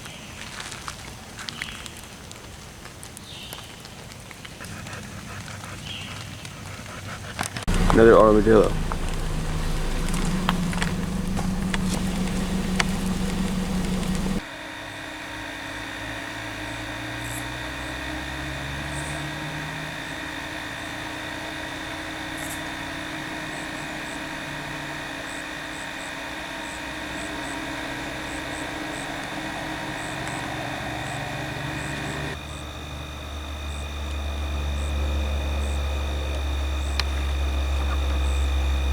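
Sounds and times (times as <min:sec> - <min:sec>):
faint low engine hum: 0:07.6 - 0:38.9
loud low hum with clicks: 0:07.7 - 0:14.5, 0:15.6 - 0:38.9.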